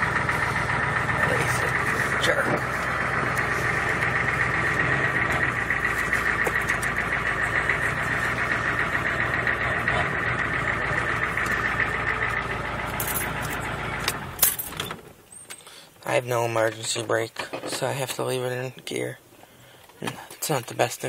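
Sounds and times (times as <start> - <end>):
diesel engine idling: 0.0 - 16.6.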